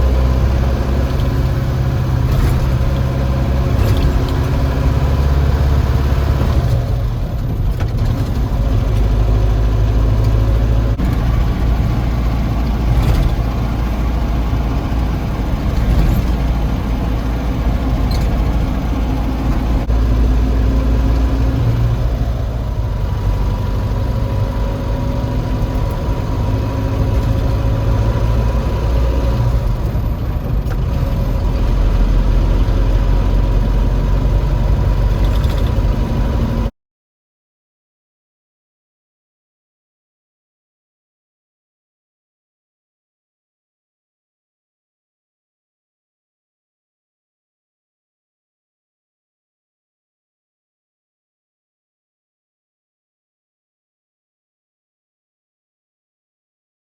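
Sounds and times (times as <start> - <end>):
diesel truck engine running: 0.0 - 36.7.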